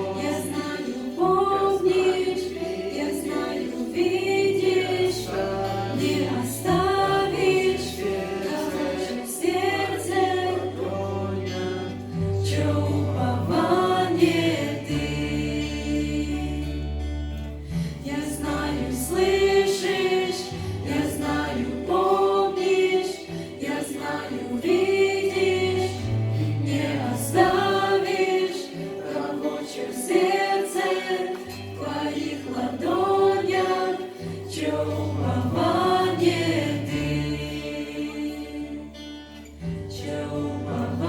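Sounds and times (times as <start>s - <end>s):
choir singing: 0.0s - 41.0s
low sustained bass notes: 1.2s - 22.6s.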